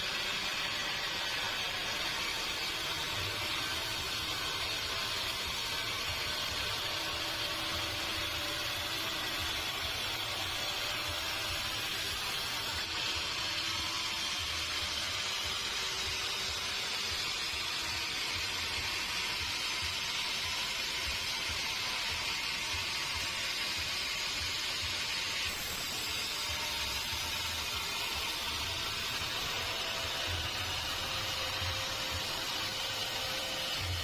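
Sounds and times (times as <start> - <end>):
sawmill machinery hissing: 0.0 - 34.0.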